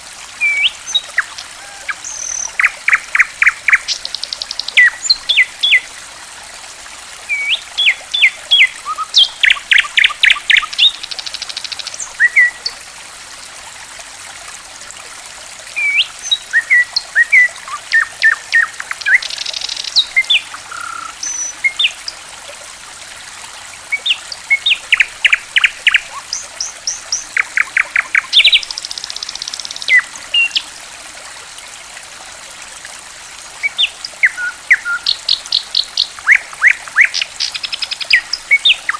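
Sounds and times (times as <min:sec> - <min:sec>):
faint trickle of running water: 0:00.0 - 0:38.9
songbird chirping: 0:24.0 - 0:30.7.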